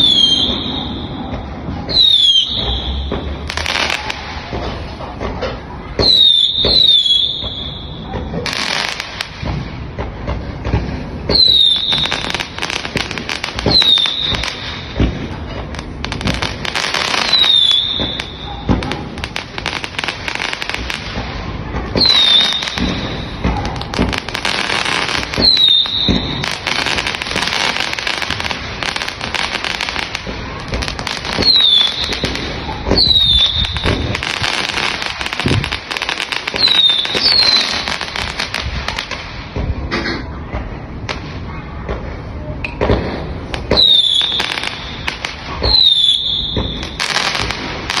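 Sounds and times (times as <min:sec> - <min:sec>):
fireworks bangs: 0:00.0 - 0:48.0
fireworks crackling: 0:00.0 - 0:48.0
falling whistles: 0:25.4 - 0:26.3, 0:45.6 - 0:47.0.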